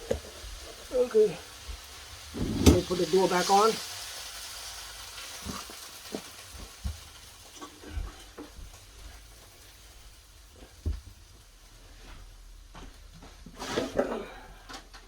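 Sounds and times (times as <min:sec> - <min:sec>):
faint steady hiss: 0:00.0 - 0:15.0
freezer door knocks and thumps: 0:02.4 - 0:02.9.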